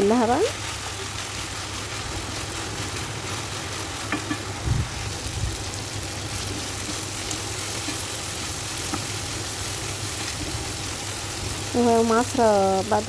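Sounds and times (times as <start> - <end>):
food sizzling in a frying pan: 0.0 - 13.0
utensil knocking on pan: 4.1 - 4.5.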